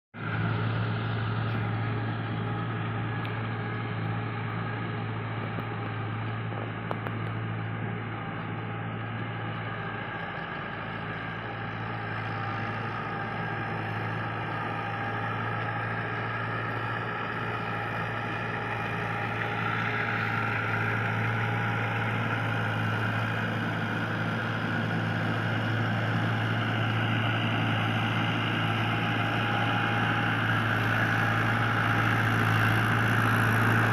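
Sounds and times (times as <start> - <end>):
tractor diesel engine running: 0.2 - 33.9.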